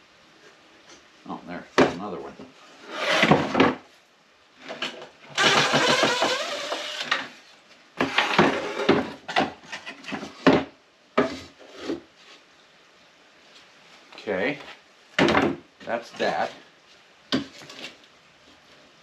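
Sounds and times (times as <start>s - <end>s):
power drill running: 5.4s - 7.1s.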